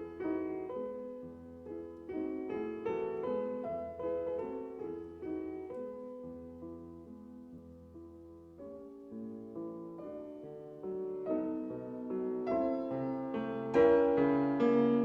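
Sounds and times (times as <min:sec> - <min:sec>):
solo piano classical piece: 0:00.0 - 0:15.0.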